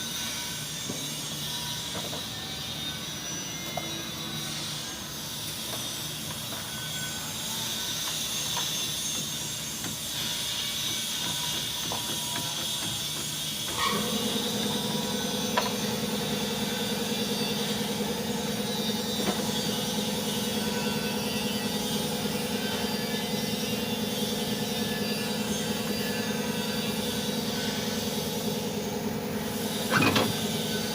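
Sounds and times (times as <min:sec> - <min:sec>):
motor humming: 0:13.6 - 0:30.9.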